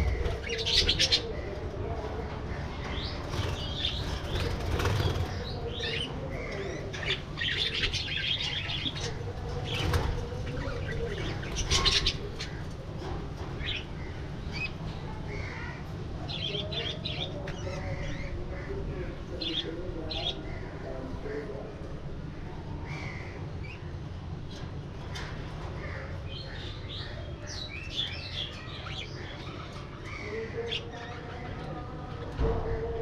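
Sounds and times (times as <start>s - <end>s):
wings flapping: 3.5s - 5.5s.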